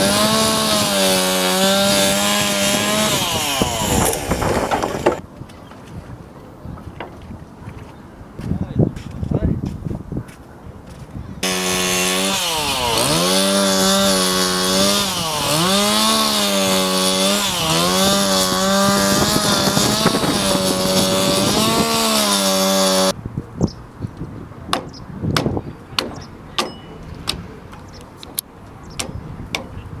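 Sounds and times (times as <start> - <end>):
chainsaw cutting wood: 0.0 - 5.2, 11.4 - 23.2.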